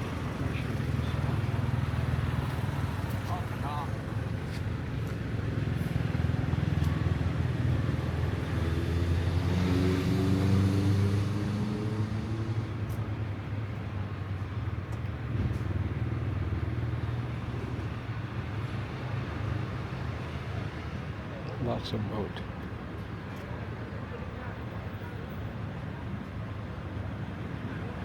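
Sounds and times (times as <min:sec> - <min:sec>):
passing vehicle engine: 0:05.7 - 0:12.8.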